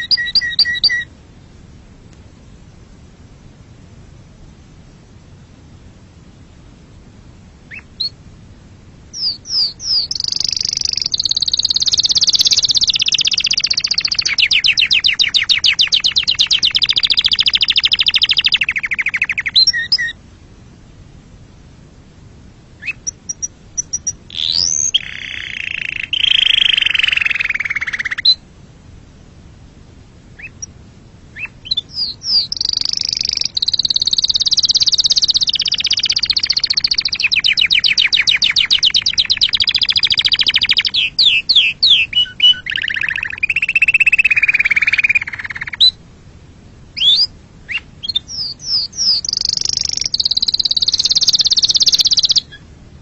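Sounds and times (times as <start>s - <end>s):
canary singing: 0.0s - 1.1s, 7.7s - 8.2s, 9.1s - 20.2s, 22.8s - 28.4s, 30.4s - 46.0s, 47.0s - 52.7s.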